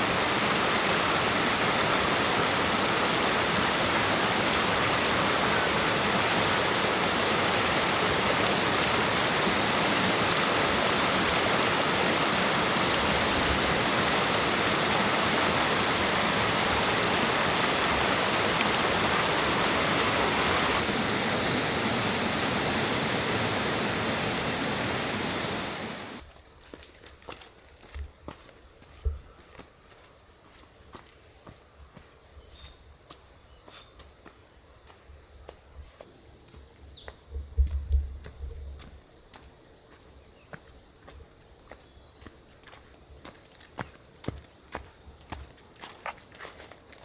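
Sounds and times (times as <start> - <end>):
flowing water rushing: 0.0 - 26.2.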